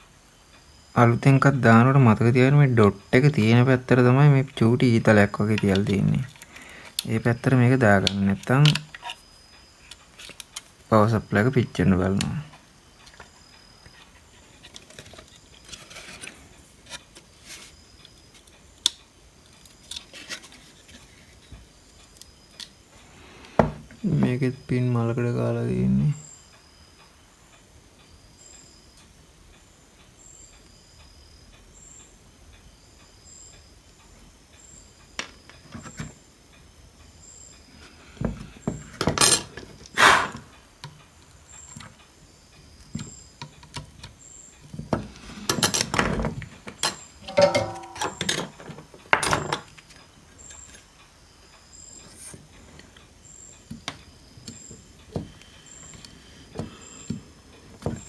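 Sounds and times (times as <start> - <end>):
hand tools clicking and scraping: 38.3 - 41.0, 44.7 - 50.8.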